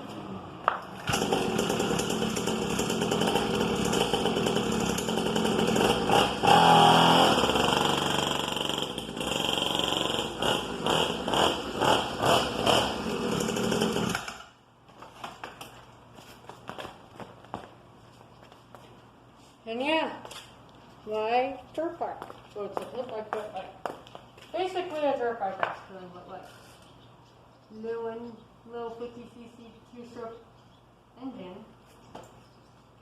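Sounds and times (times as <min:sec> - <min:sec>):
dirt bike engine revving: 0:01.0 - 0:14.4.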